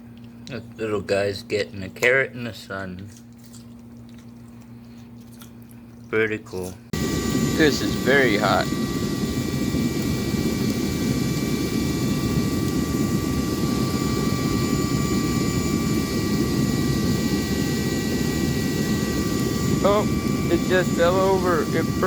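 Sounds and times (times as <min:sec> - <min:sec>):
torch burner flame rushing: 0:07.0 - 0:22.0.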